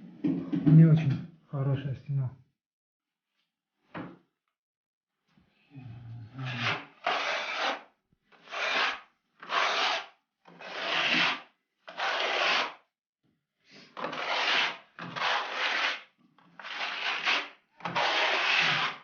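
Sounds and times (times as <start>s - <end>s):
scraping plaster wall: 5.8s - 12.9s, 13.8s - 19.0s.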